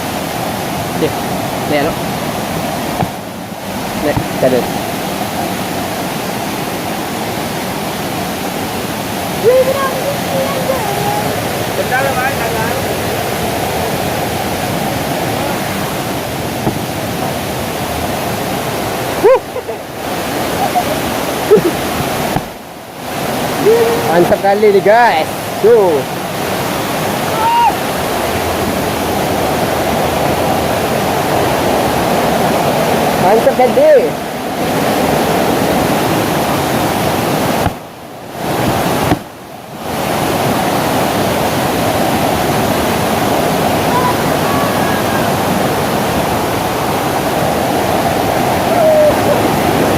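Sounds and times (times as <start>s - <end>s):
waterfall rushing: 0.0s - 49.9s
brief knock: 39.0s - 39.3s.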